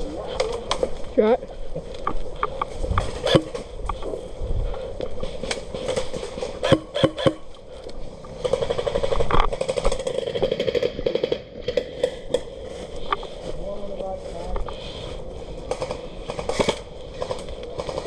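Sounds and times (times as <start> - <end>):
sharp clicks and knocks: 2.0 - 4.0, 5.4 - 12.5
airsoft gun full-auto burst: 6.6 - 7.4, 8.4 - 12.1, 15.7 - 18.0.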